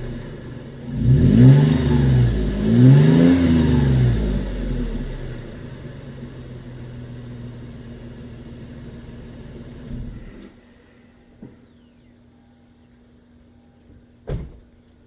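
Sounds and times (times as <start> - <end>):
car engine idling: 0.0 - 11.2.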